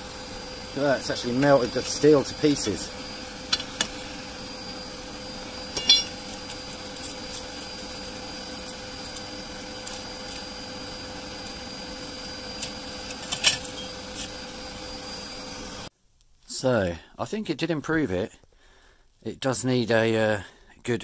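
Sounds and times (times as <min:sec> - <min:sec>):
mechanical hum with whine: 0:00.0 - 0:15.9
sharp clinks: 0:05.8 - 0:06.2.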